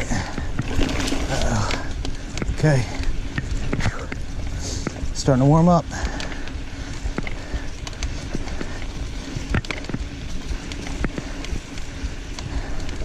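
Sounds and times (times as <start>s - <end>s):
bike knocks and rattles: 0.0s - 6.5s
bike rumbling over rough trail: 0.0s - 13.0s.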